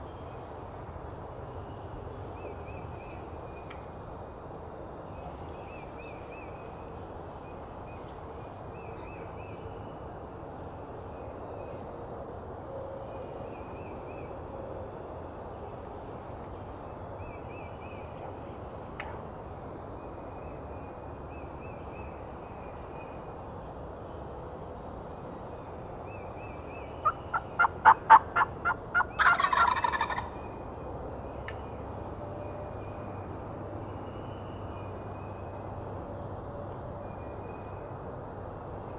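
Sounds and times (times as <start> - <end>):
steady outdoor hiss: 0.0 - 38.9
turkey gobbling: 27.0 - 30.3.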